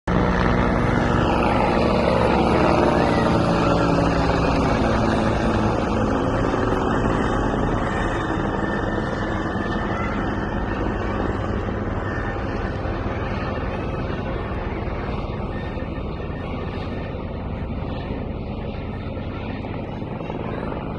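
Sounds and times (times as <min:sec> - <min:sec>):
helicopter flying: 0:00.0 - 0:20.9.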